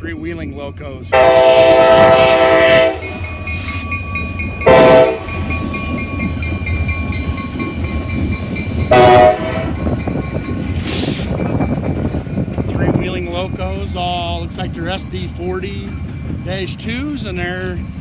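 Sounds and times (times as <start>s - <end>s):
diesel locomotive engine rumble: 0.0s - 18.0s
locomotive air horn blasts: 1.1s - 3.2s, 4.6s - 5.4s, 8.9s - 9.9s.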